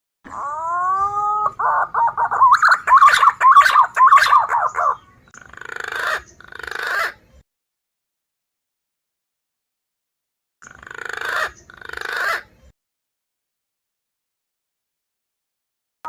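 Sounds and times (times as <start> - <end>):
pigeon whistling call: 0.3 - 5.1.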